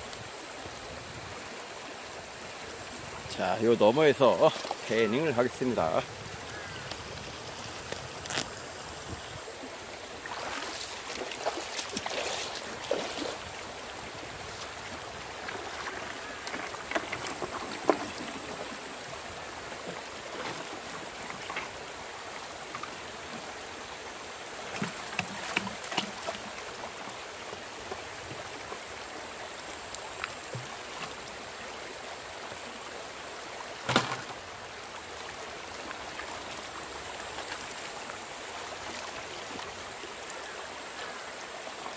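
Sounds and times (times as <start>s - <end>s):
stream water running: 0.0s - 41.9s
water splashing: 1.8s - 23.5s, 24.6s - 28.8s.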